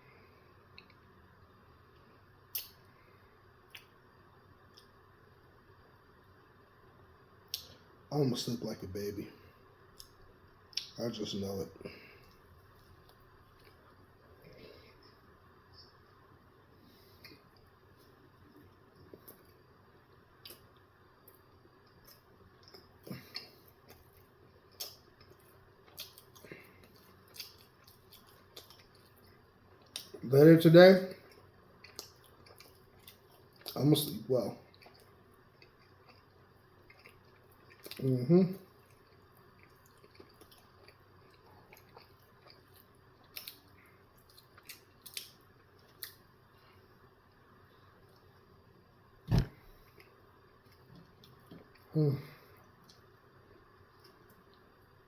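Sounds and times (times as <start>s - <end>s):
mouth clicks and smacks: 2.5s - 2.8s, 3.7s - 4.0s
mouth clicks and smacks chewing: 3.7s - 4.0s, 20.4s - 30.2s, 31.3s - 33.8s, 34.7s - 38.0s, 38.8s - 46.2s.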